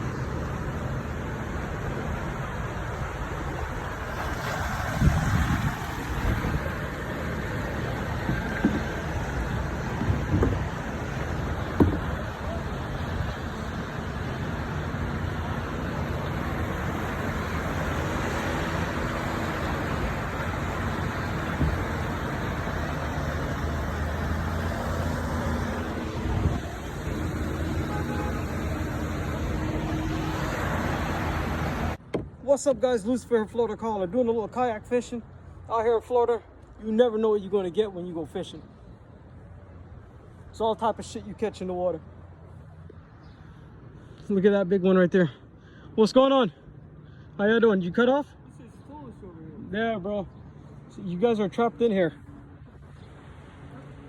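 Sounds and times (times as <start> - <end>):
water noise: 0.0 - 32.6
constant rushing noise: 0.0 - 42.8
wind: 0.0 - 54.0.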